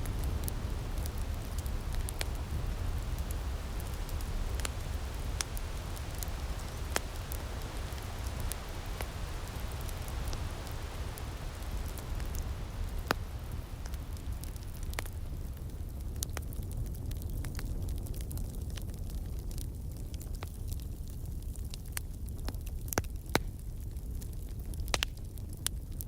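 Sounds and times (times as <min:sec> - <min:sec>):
steady low rumble: 0:00.0 - 0:20.7
wood fire crackling and popping: 0:00.0 - 0:26.0.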